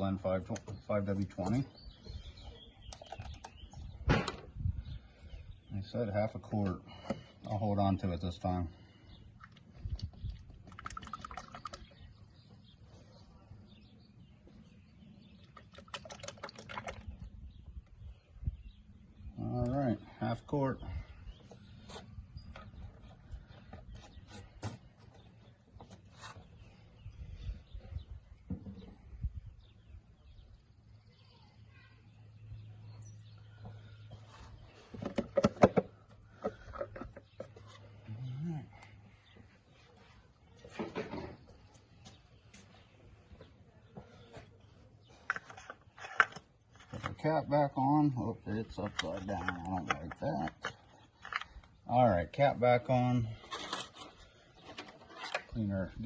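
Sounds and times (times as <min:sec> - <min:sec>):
oil glugging from bottle: 0:09.4 - 0:11.9, 0:15.6 - 0:17.2.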